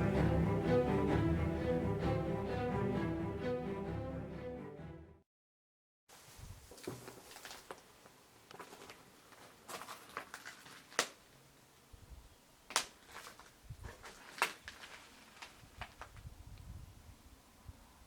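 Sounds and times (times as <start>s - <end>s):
faint crackles and clicks: 12.7s - 16.2s.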